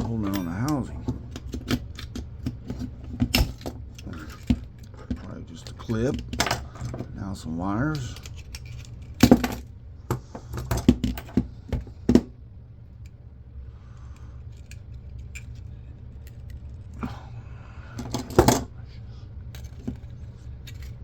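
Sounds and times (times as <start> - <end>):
clicks of tools and small parts: 0.0 - 7.1, 7.9 - 11.4, 14.2 - 17.0, 19.5 - 21.0
steady low hum: 0.0 - 21.0.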